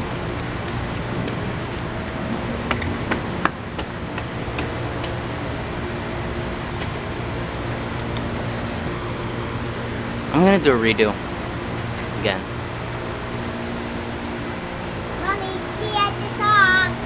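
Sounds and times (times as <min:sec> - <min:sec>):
high electronic beeps: 0:05.4 - 0:05.8, 0:06.4 - 0:06.8, 0:07.4 - 0:07.8, 0:08.4 - 0:08.8.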